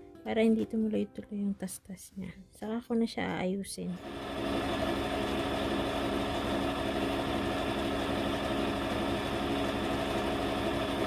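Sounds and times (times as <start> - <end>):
sewing machine running: 4.0 - 11.0.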